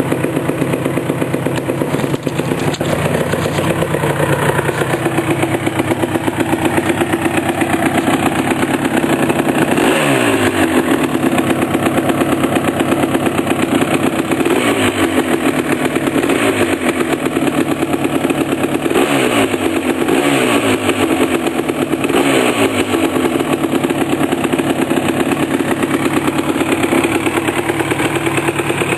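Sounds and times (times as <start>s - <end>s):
two-stroke engine idling and revving: 0.0s - 28.9s.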